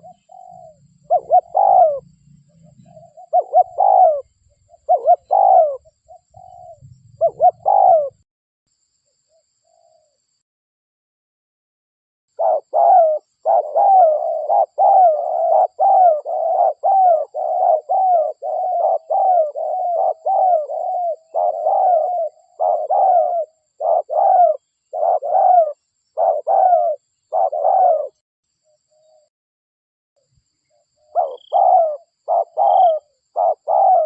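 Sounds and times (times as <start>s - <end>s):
dove cooing: 0.0s - 8.2s, 12.4s - 28.2s, 30.7s - 34.0s.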